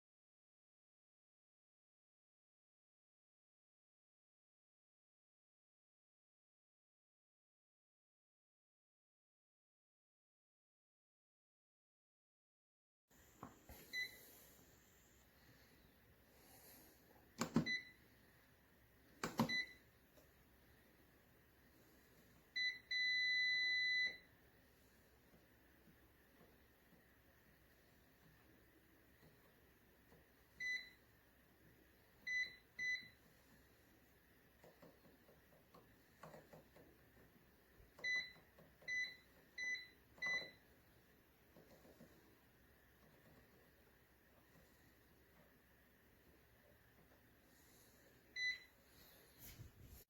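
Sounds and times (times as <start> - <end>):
control panel clicks: 17.4 - 17.8, 19.2 - 19.7
long steady beep: 22.6 - 24.3, 32.3 - 33.2, 38.0 - 40.6, 48.4 - 48.7.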